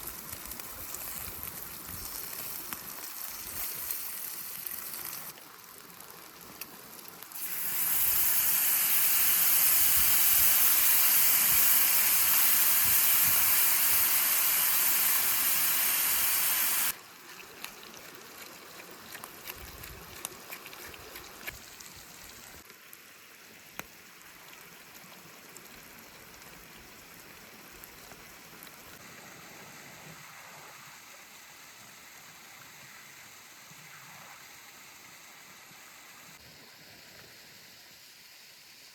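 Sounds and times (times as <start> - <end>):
fire crackles: 0.0 - 17.0
cooking hiss over fire: 0.0 - 38.9.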